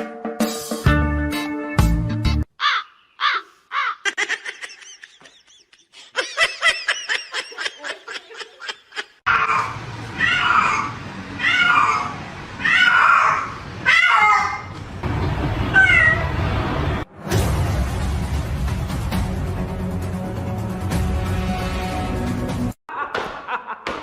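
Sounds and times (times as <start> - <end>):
high giggle-like calls: 2.6 - 9.8
cat meowing: 9.4 - 14.7, 15.7 - 16.3.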